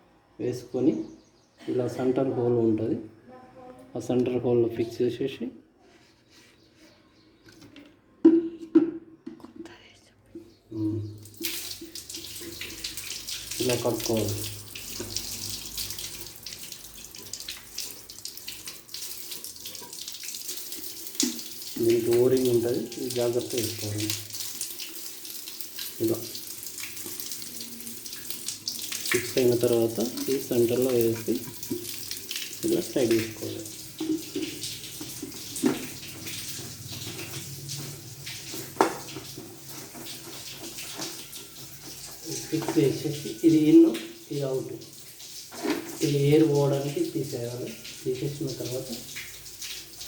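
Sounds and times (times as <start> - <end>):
water splashing and trickling: 10.4 - 50.0.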